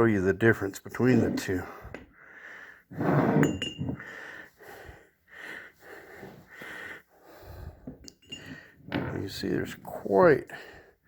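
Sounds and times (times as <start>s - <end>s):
heavy breathing: 1.4s - 3.0s, 3.9s - 8.9s, 10.5s - 11.0s
light metal clink: 8.0s - 8.6s.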